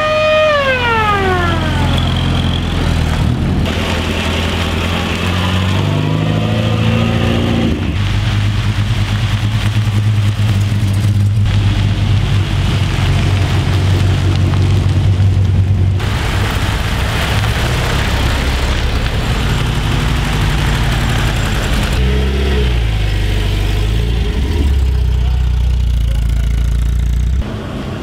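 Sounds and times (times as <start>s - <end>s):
siren winding down: 0.0s - 2.6s
small car engine revving: 0.0s - 12.0s.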